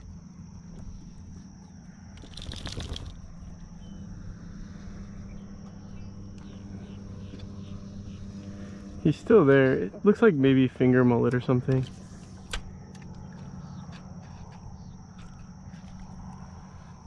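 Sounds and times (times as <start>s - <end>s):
low hum: 0.0s - 17.0s
rustling: 2.2s - 3.2s.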